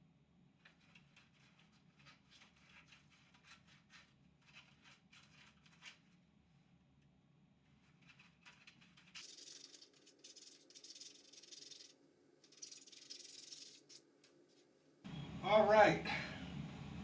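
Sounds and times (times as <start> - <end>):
sandpaper rubbing on plastic: 0.6 - 6.2, 7.8 - 14.2
low steady hum: 14.5 - 17.0.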